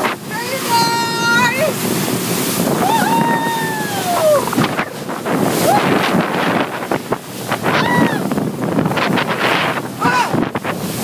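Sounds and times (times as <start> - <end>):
water rushing past boat: 0.0 - 11.0
wind buffeting microphone: 0.0 - 11.0
high whooping cry: 2.8 - 4.6.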